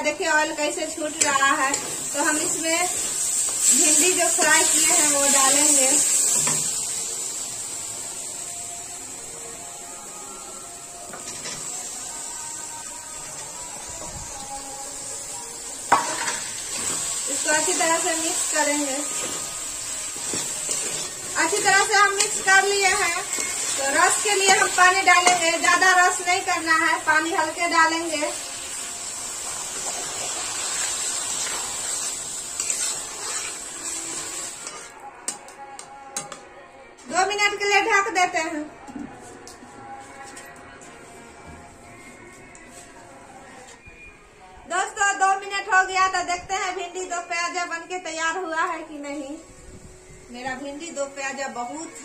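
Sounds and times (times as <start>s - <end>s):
masala sizzling in a pan: 0.0s - 36.3s
spatula scraping: 20.2s - 25.6s, 32.5s - 35.0s.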